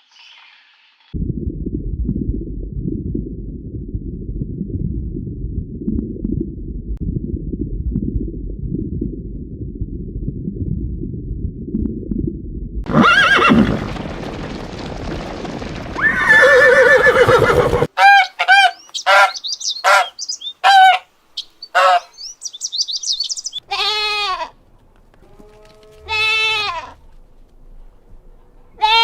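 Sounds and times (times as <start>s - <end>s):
horse whinny: 12.9s - 13.8s, 16.0s - 17.9s
short bird calls and chirps: 18.7s - 23.6s
animal bleats: 23.6s - 24.6s, 25.2s - 27.1s, 28.8s - 29.0s.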